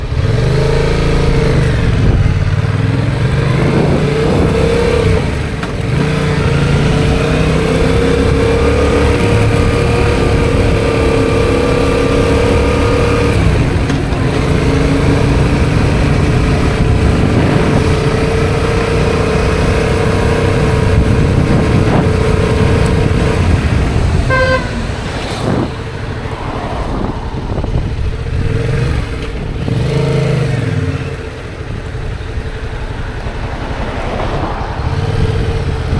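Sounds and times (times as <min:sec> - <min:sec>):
motorcycle engine running: 0:00.0 - 0:35.9
short horn beep: 0:24.2 - 0:25.7.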